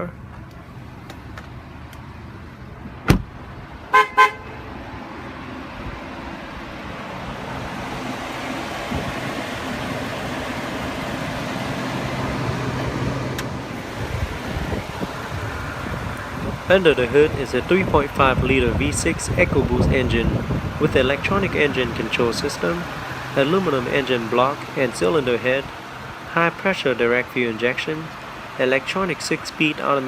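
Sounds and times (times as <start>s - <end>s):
truck engine idling: 0.0s - 30.0s
short horn toots: 3.9s - 4.6s.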